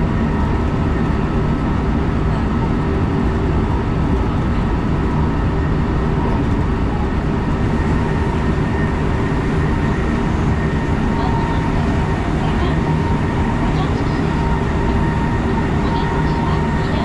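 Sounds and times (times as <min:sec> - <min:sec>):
wheels rumbling on rail: 0:00.0 - 0:17.0
faint even whine: 0:04.1 - 0:17.0.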